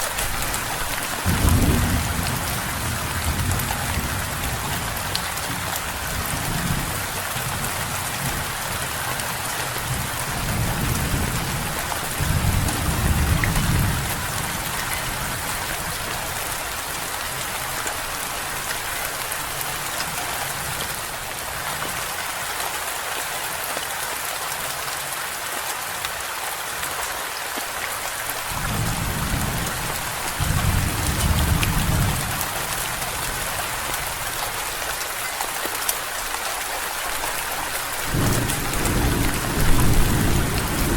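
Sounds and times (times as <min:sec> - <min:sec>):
steady rain: 0:00.0 - 0:40.9
low thunder rolls: 0:38.1 - 0:40.9.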